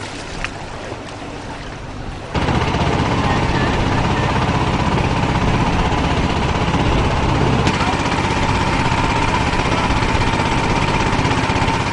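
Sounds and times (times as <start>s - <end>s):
steady whine: 2.0s - 11.9s
small engine running: 2.3s - 11.9s.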